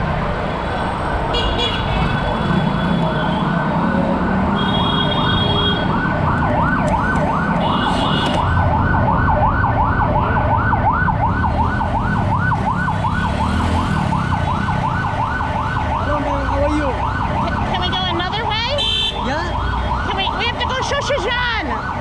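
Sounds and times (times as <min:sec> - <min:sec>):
road traffic rumble: 0:00.0 - 0:22.0
vehicle siren yelping: 0:05.0 - 0:22.0.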